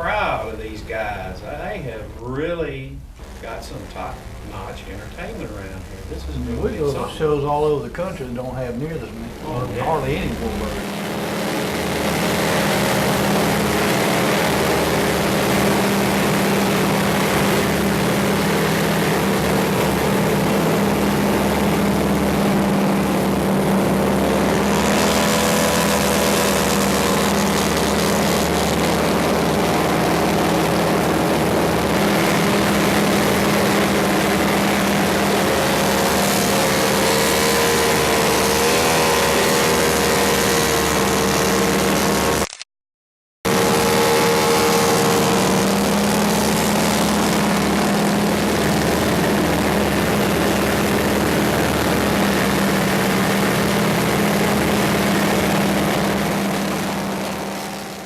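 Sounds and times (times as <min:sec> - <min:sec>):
propeller airplane engine drone: 0:00.0 - 0:42.6, 0:43.5 - 0:58.0.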